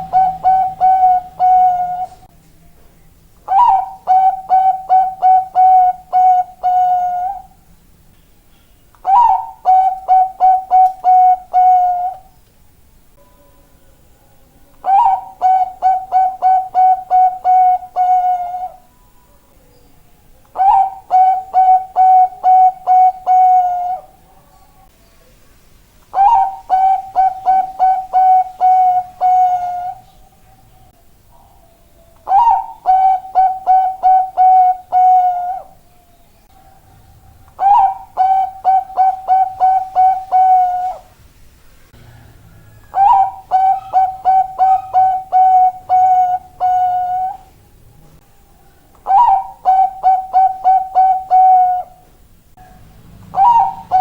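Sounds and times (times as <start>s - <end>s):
dove cooing: 0.0s - 2.3s, 3.5s - 7.6s, 9.0s - 12.3s, 14.8s - 18.9s, 20.5s - 24.5s, 26.1s - 30.4s, 31.3s - 35.8s, 36.5s - 41.1s, 42.0s - 47.5s, 48.7s - 54.0s.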